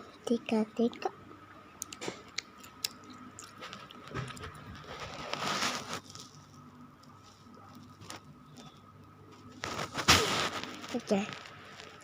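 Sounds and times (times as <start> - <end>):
person chewing food: 1.8 - 5.3.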